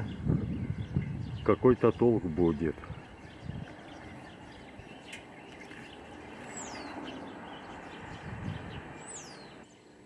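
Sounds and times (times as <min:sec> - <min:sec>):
bird whistled call: 0:08.2 - 0:09.6.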